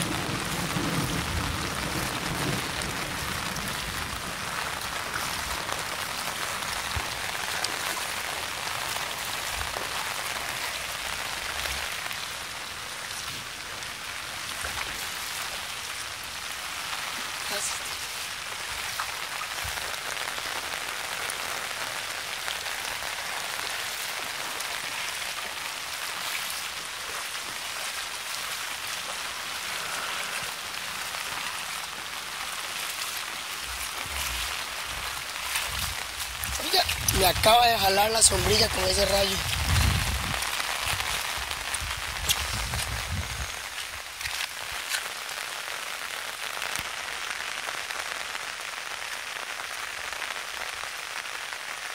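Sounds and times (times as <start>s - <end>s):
heavy rain hissing: 0.0s - 51.9s
sharp raindrop ticks: 30.4s - 51.9s.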